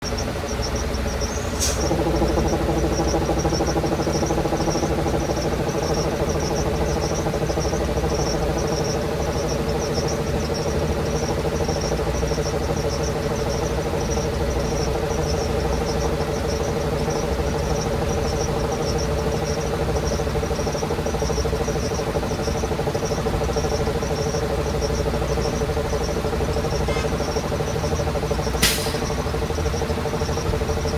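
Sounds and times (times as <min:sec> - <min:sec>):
bus engine idling: 0:00.0 - 0:30.9
sharp click: 0:28.5 - 0:29.2.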